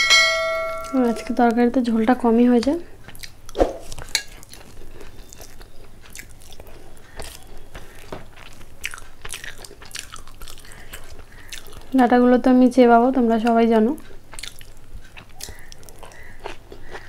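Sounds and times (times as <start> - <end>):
person chewing food: 2.6 - 12.0, 13.2 - 17.0.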